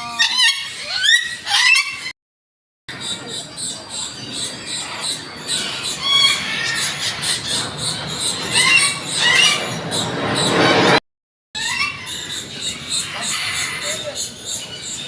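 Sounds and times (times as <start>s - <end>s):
birds squawking and squealing: 0.0s - 2.1s, 2.9s - 11.0s, 11.6s - 15.0s
fast high pulsing chatter: 2.9s - 11.0s.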